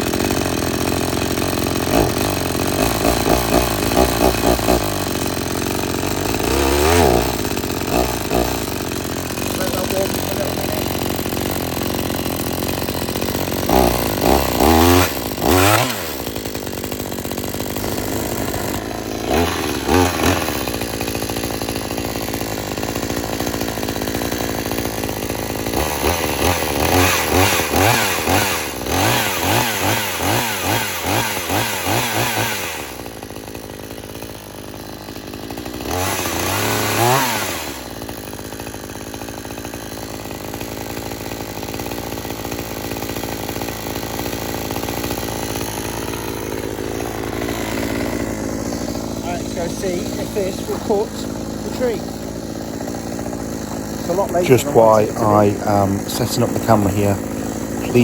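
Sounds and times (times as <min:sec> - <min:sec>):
chainsaw idling and revving: 0:00.0 - 0:58.0.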